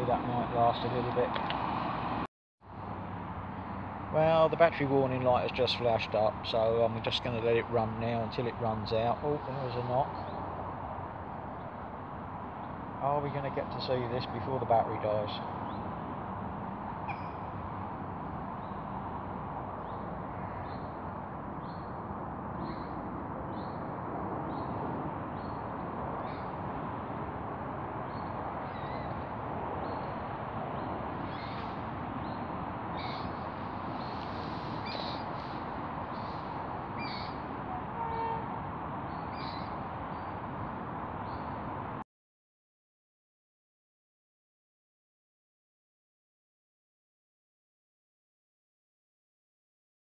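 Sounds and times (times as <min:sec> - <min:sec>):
birds chirping: 0:04.5 - 0:10.6, 0:16.8 - 0:26.7, 0:27.9 - 0:40.6.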